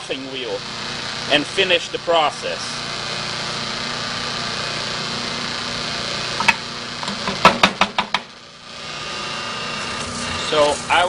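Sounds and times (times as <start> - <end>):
bench grinder motor running: 0.0 - 11.0
sharp knocks: 6.4 - 8.3.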